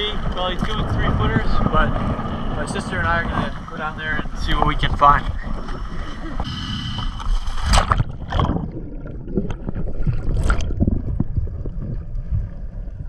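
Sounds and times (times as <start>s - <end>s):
low rumble: 0.0s - 13.0s
seawater sloshing and splashing: 7.2s - 12.5s.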